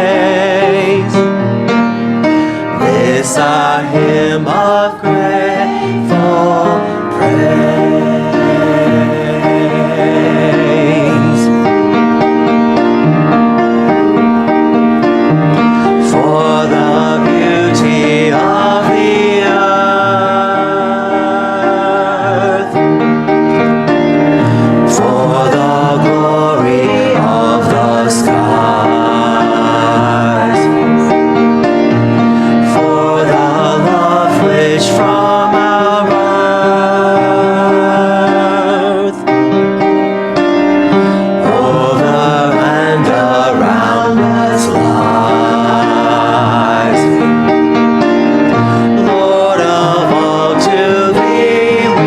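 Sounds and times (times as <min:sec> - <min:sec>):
church choir singing a hymn: 0:00.0 - 0:52.0
piano accompaniment: 0:00.0 - 0:52.0.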